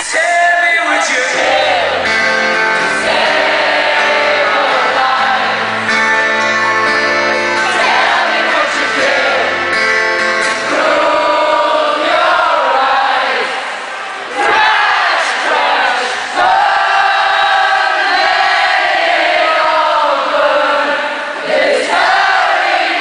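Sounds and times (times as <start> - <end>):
guitar: 0.8 - 20.5
person singing: 0.9 - 9.6
live band music: 1.2 - 11.6.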